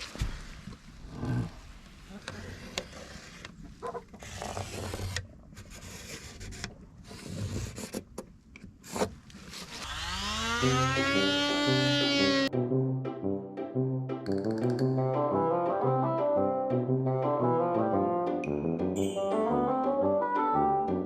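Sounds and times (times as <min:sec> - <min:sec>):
brass music: 0:10.2 - 0:14.2, 0:14.8 - 0:21.0.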